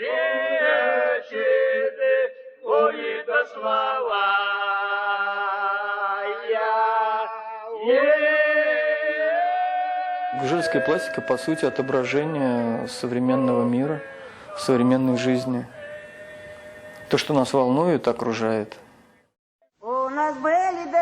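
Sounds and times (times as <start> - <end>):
unaccompanied voices chanting: 0.0 - 17.4.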